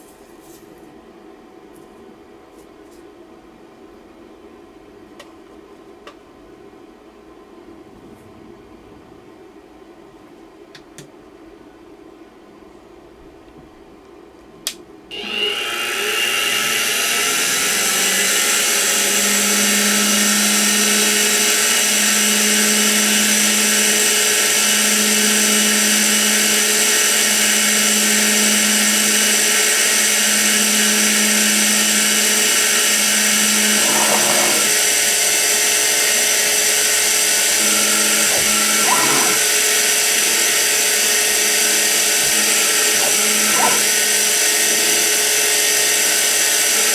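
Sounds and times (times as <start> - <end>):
mill spindle motor running: 15.1 - 46.9.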